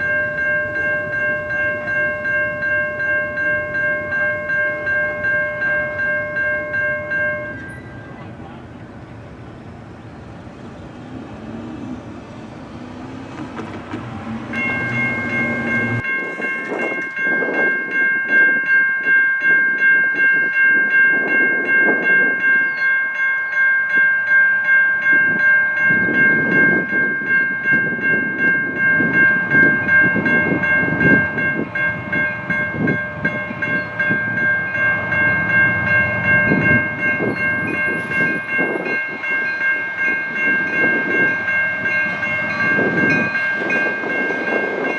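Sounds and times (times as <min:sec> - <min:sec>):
train passing: 0:00.0 - 0:22.8, 0:23.9 - 0:44.9
train cars clattering over rail joints: 0:10.0 - 0:17.2.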